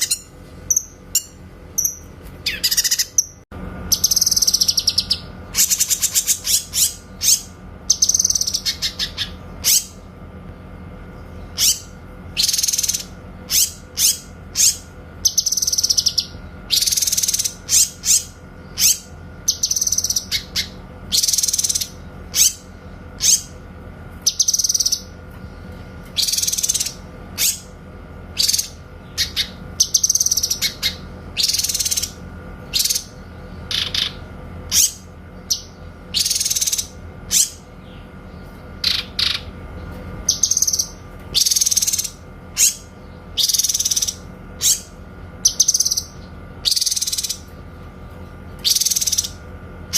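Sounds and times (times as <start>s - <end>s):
bird calling in sharp bursts: 0.0s - 10.0s, 11.5s - 23.6s, 40.2s - 47.6s.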